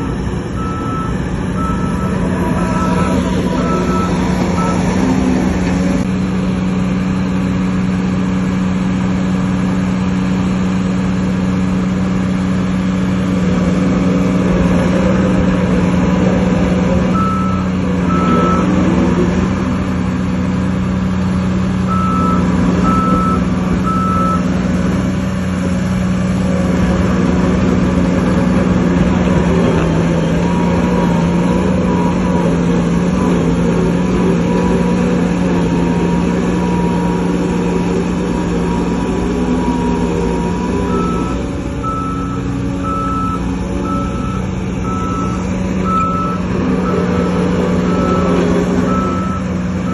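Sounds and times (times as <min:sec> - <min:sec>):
reversing alarm beeping: 0:00.0 - 0:05.7, 0:17.1 - 0:18.9, 0:21.9 - 0:24.5, 0:29.7 - 0:49.9
diesel earth-moving machinery running: 0:00.0 - 0:49.9.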